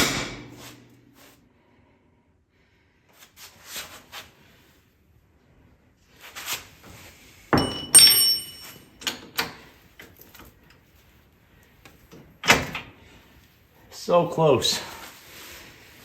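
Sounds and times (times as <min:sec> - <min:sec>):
hammer striking metal punch: 0:00.0 - 0:00.6, 0:07.6 - 0:08.8.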